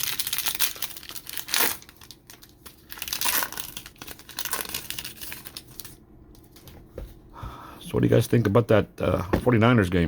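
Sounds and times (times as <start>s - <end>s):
card pack wrapper crinkling: 0.0s - 6.0s.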